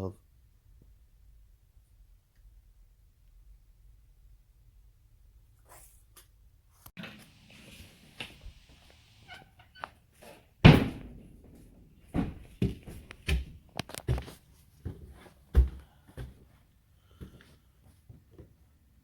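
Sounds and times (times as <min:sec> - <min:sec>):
loud thump: 0:10.6 - 0:13.0
footsteps on wooden stairs: 0:10.7 - 0:16.4.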